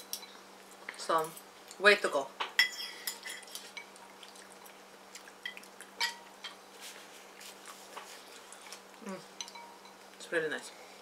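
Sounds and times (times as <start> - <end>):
low steady hum: 0.0 - 11.0
utensils tapping bowls: 9.4 - 10.0.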